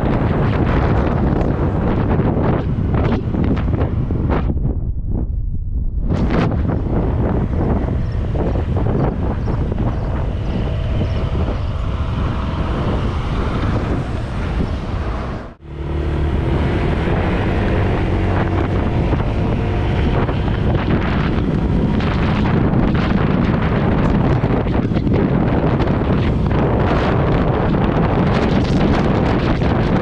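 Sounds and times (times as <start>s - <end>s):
wind buffeting microphone: 0.0s - 30.0s
scooter engine humming: 6.8s - 28.2s.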